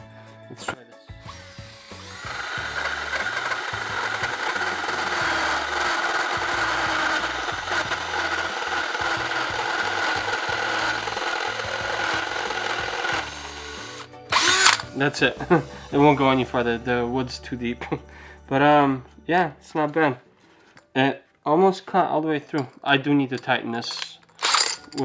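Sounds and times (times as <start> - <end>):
drill hole saw cutting wood: 1.3 - 15.0, 24.4 - 25.0.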